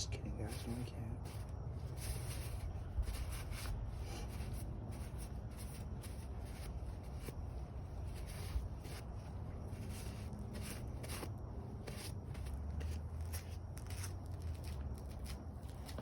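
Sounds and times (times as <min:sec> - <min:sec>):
low steady rumble: 0:00.0 - 0:16.0
rubbing and scuffing handling noises: 0:00.0 - 0:16.0.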